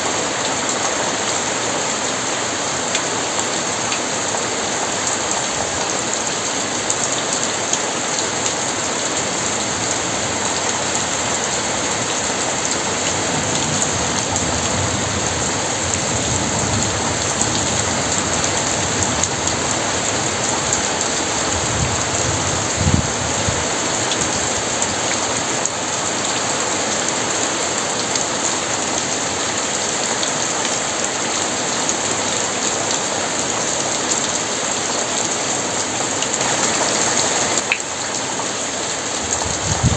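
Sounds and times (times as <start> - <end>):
heavy rain falling: 0.0 - 39.9
thunder rumbling: 39.3 - 39.9.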